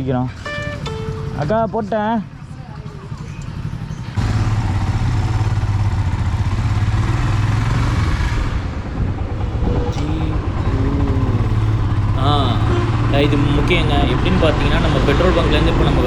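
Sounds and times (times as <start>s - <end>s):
motorcycle engine riding off: 0.1s - 16.0s
wind noise on microphone: 8.4s - 10.9s.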